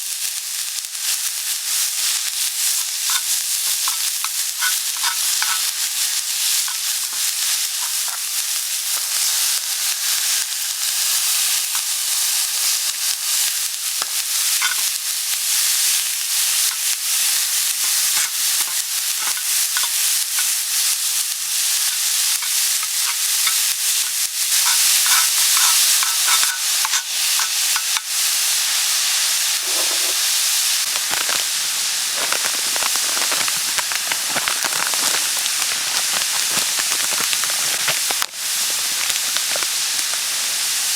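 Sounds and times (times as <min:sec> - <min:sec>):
food sizzling on iron griddle: 0:00.0 - 0:40.9
spatula clicks and scrapes: 0:03.0 - 0:09.4, 0:14.0 - 0:15.0, 0:16.7 - 0:28.2, 0:30.9 - 0:31.6, 0:32.2 - 0:40.2.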